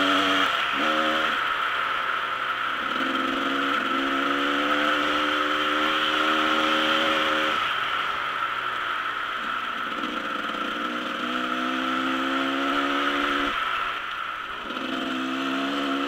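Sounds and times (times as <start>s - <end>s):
constant hiss: 0.0s - 16.0s
dirt bike engine running: 0.0s - 16.0s.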